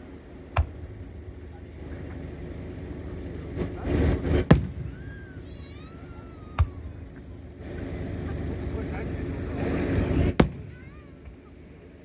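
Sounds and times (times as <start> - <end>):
firework rushing swell: 3.4 - 10.8
firework bangs: 3.9 - 7.3, 9.7 - 11.1
faint wavering whistling: 4.9 - 7.0.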